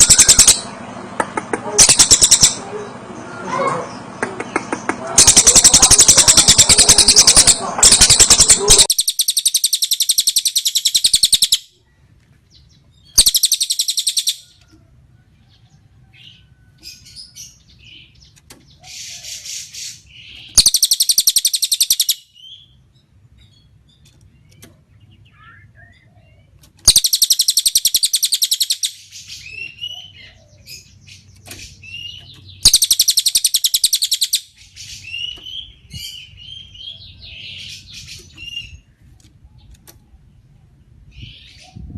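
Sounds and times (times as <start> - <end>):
bird rattling trill: 0.0 - 0.7, 1.8 - 2.6, 5.2 - 11.7, 13.2 - 14.5, 20.4 - 22.2, 26.8 - 29.1, 31.4 - 34.5
soft bird chirps: 1.8 - 41.9.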